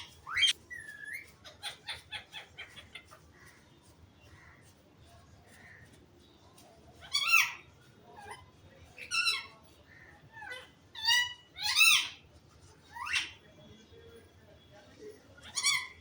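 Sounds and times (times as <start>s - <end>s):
parrot calls: 0.0s - 3.2s, 7.0s - 8.4s, 10.3s - 12.2s, 15.4s - 16.0s.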